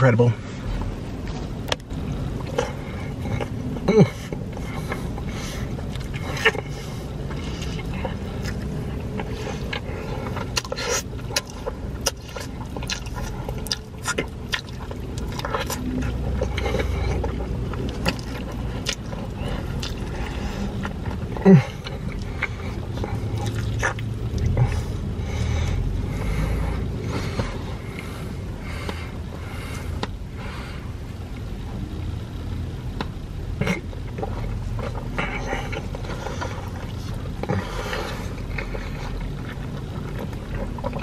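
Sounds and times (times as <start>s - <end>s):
low rumble: 0.0s - 41.0s
person chewing: 0.8s - 30.7s, 33.0s - 41.0s
lip-smacking and mouth clicks: 4.3s - 24.9s.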